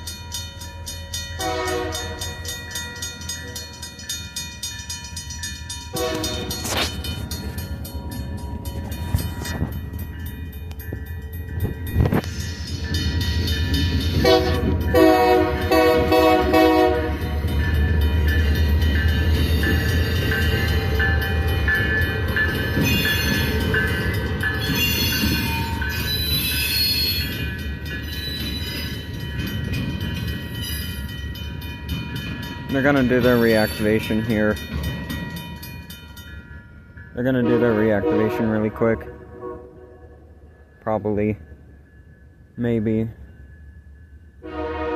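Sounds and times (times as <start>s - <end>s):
crossing warning bell ringing: 0.0s - 44.9s
train locomotive rumble: 0.0s - 44.9s
locomotive air horn: 1.4s - 2.2s, 6.0s - 6.8s, 14.2s - 17.2s, 37.4s - 40.0s, 44.4s - 44.9s.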